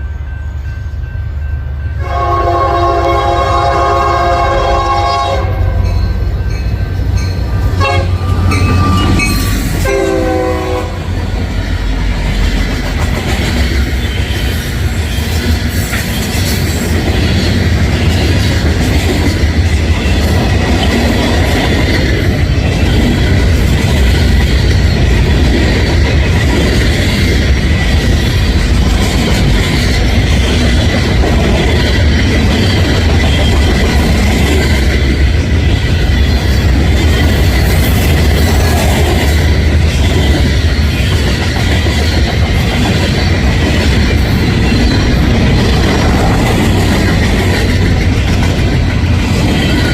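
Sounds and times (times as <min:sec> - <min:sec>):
train rumbling and clattering: 0:00.0 - 0:49.9
train air horn: 0:02.0 - 0:05.9, 0:07.7 - 0:11.1.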